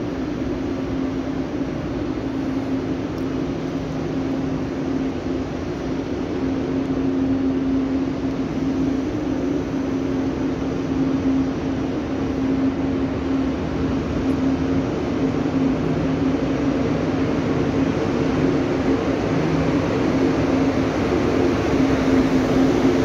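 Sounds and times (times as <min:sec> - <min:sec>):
train passing with hum and rushing: 0:00.0 - 0:23.0.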